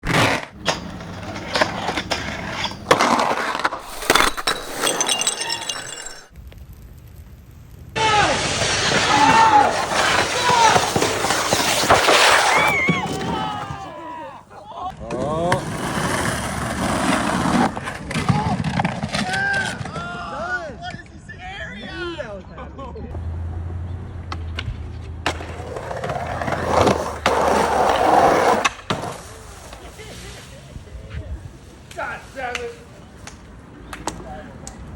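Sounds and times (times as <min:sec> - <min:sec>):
skateboard clacks: 0:00.0 - 0:03.9, 0:24.3 - 0:29.9
skateboard wheels rolling: 0:00.0 - 0:05.7, 0:08.0 - 0:14.0, 0:15.1 - 0:20.2, 0:24.3 - 0:33.8
sharp crashes: 0:00.5 - 0:06.3
high tinkling ringing tones: 0:03.8 - 0:06.3.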